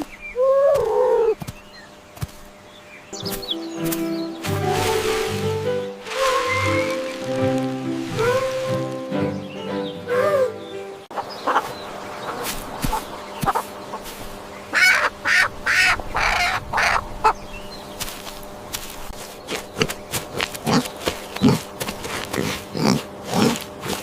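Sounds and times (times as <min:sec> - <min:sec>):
poultry calling: 0:05.7 - 0:17.5.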